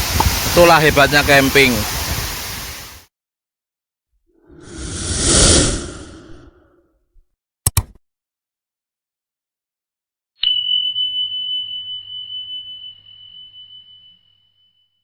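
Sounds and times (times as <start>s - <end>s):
quick clicks: 7.7s - 8.0s
high bell-like ding: 10.4s - 15.0s.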